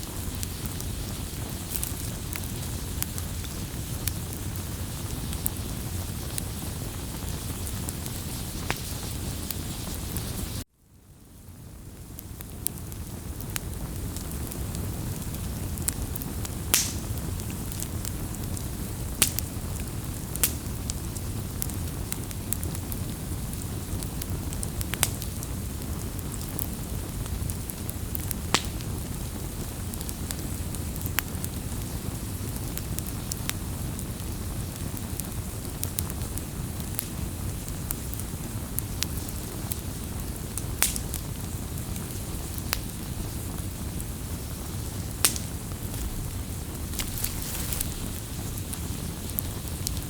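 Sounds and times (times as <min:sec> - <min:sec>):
fire crackles and pops: 0:00.0 - 0:50.0
wood fire rushing: 0:33.8 - 0:50.0.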